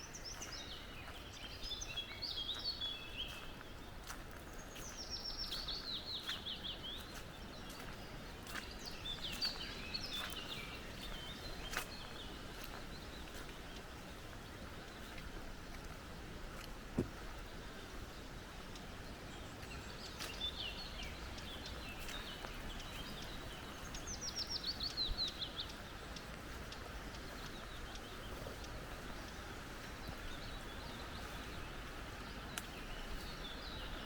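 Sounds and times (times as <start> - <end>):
songbirds whistling: 0.0 - 13.9.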